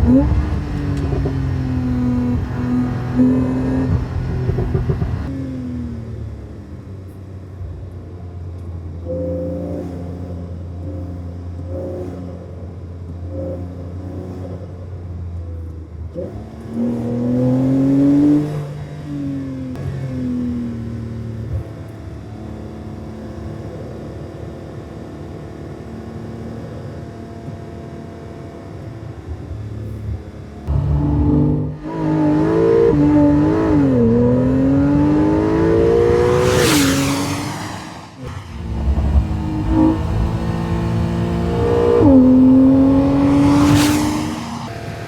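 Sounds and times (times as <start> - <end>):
sports car engine revving: 0.0 - 5.6, 28.5 - 45.0.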